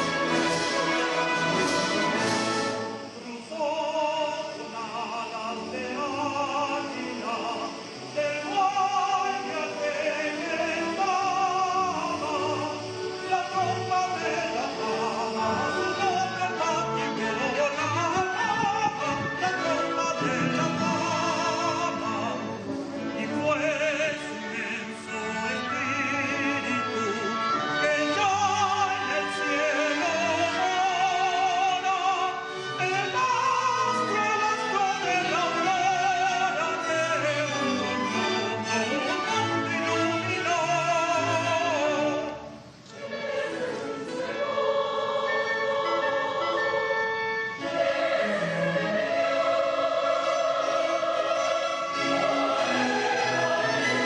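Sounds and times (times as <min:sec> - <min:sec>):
choir singing: 0:00.0 - 0:54.0
operatic singing with vibrato: 0:00.0 - 0:54.0
symphony orchestra: 0:00.0 - 0:54.0.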